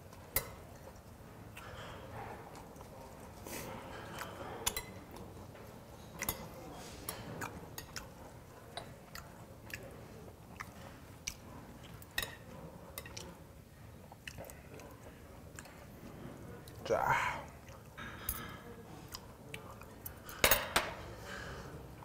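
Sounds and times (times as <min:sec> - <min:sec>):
close-miked chewing: 0:00.0 - 0:20.4.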